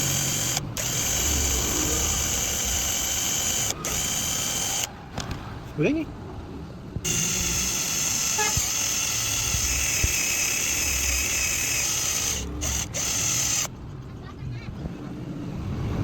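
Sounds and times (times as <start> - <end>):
electric power tool running: 0.0 - 4.9, 7.0 - 13.7.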